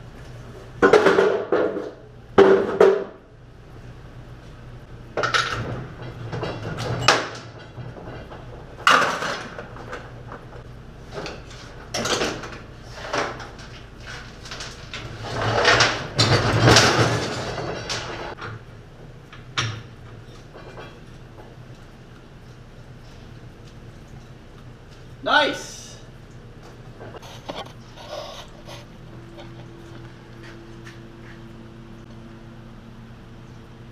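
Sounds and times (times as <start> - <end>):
steady low hum: 0.0 - 33.9
metal clanks of tools and parts: 5.2 - 10.4, 11.1 - 18.6, 19.3 - 21.1.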